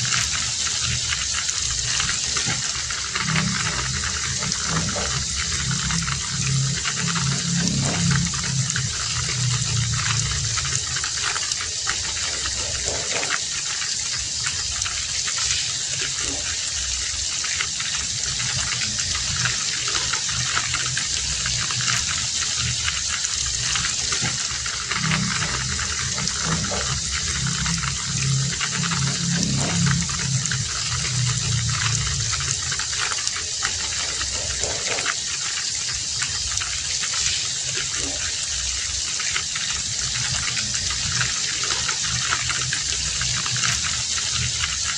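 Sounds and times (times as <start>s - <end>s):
low hum: 0.0s - 15.4s, 16.0s - 35.3s
heavy rain: 0.0s - 44.9s.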